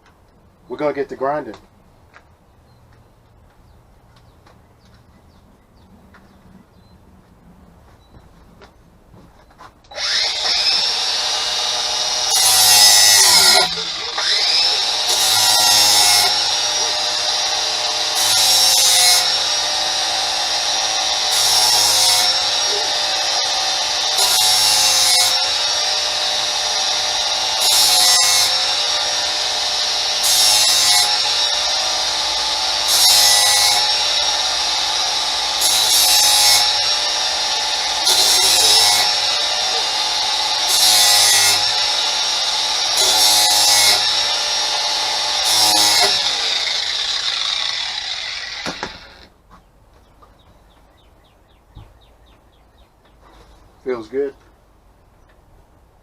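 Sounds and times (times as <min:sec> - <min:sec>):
electric grinder whining: 0:09.9 - 0:49.3
grinding wheel rasping on metal: 0:09.9 - 0:49.3.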